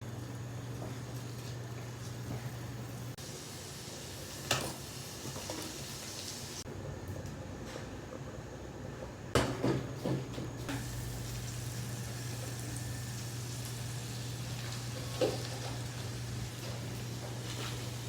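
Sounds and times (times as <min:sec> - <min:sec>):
food sizzling on a stove: 0:00.0 - 0:06.7, 0:10.7 - 0:18.0.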